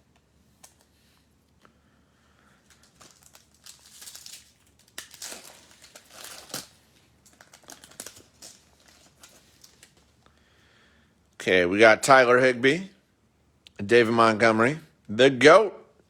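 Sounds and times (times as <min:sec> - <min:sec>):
card pack wrapper crinkling and tearing: 0:02.6 - 0:10.2.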